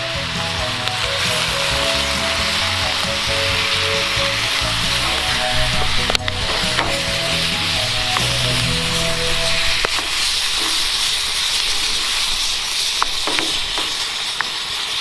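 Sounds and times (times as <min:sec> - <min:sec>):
soft background music: 0:00.0 - 0:09.9
food sizzling in a hot pan: 0:00.0 - 0:15.0.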